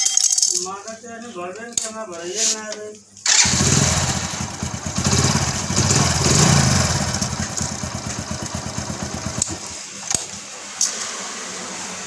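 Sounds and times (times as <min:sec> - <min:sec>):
motorcycle engine running: 0:03.3 - 0:09.8.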